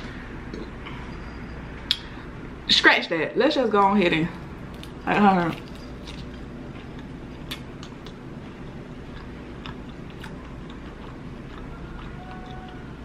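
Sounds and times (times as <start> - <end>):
person chewing fried shrimp: 4.7 - 13.0.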